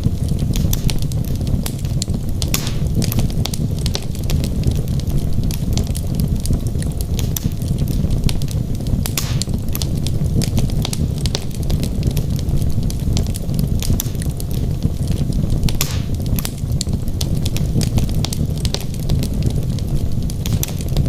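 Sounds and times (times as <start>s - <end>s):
wood fire crackling: 0.0s - 21.0s
large pop: 9.1s - 9.6s.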